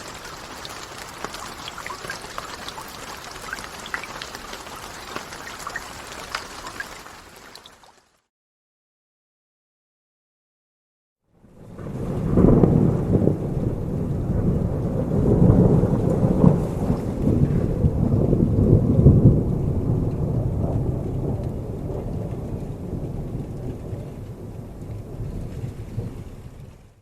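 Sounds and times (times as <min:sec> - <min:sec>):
steady rain: 0:00.0 - 0:08.2, 0:11.5 - 0:27.0
rolling thunder: 0:11.5 - 0:27.0.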